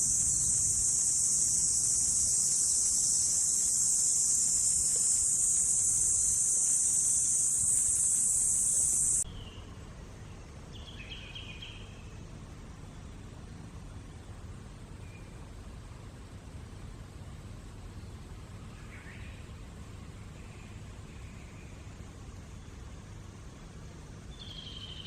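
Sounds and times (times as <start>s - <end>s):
high-pitched insect drone: 0.0s - 9.2s
faint high chirps: 0.0s - 9.7s.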